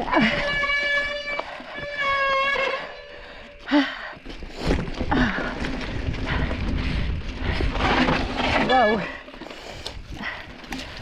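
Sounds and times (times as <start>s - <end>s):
mountain bike rattling over rocks: 4.1s - 11.0s.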